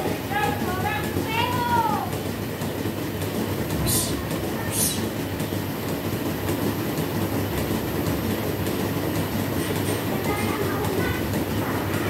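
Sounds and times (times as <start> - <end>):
milking machinery rumble and hum: 0.0 - 12.0
short hisses: 3.8 - 5.1.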